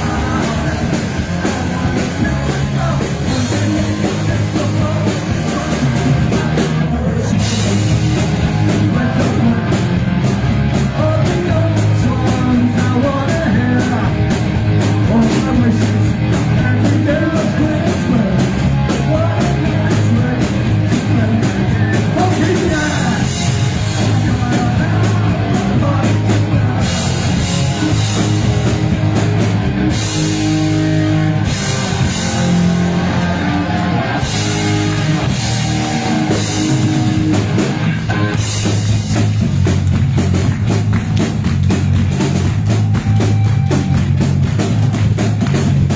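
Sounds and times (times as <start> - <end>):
sung vocals: 0.0 - 28.8
distorted guitars and bass: 0.0 - 45.9
fast driving drums: 0.0 - 45.9.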